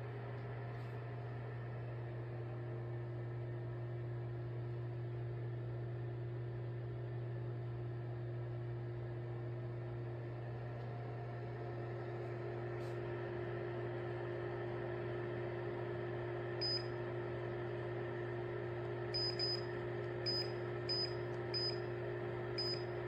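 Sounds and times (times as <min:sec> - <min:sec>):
clothes dryer motor hum: 0:00.0 - 0:23.0.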